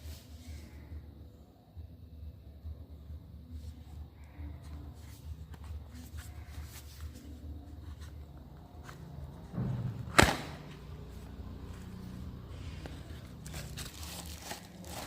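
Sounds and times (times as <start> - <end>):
sharp slap: 10.1 - 10.8
packaging rustling: 12.8 - 15.0.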